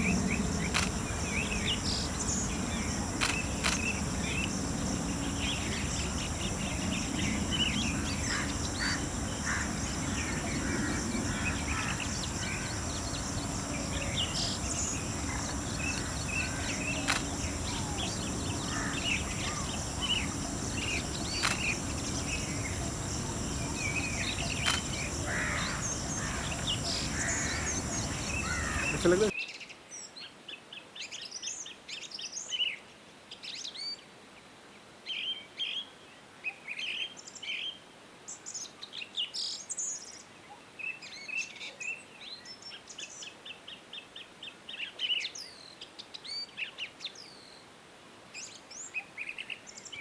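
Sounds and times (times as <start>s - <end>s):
low background rumble: 0.0s - 29.1s
steady high-pitched hum: 0.0s - 29.3s
wild birds chirping: 0.0s - 30.1s
sharp clicks: 0.6s - 1.0s, 3.2s - 3.9s, 17.0s - 17.4s, 21.3s - 21.8s, 24.5s - 25.0s.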